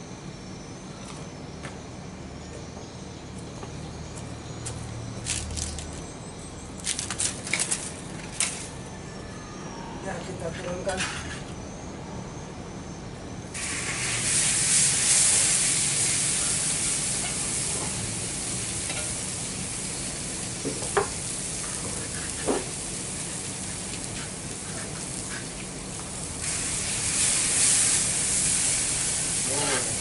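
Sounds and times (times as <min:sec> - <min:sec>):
food sizzling in hot oil: 0:13.6 - 0:30.0.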